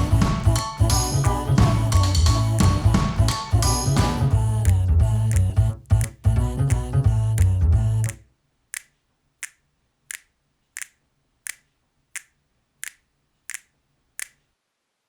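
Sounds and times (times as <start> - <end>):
finger snaps: 4.6 - 6.8, 8.8 - 14.4.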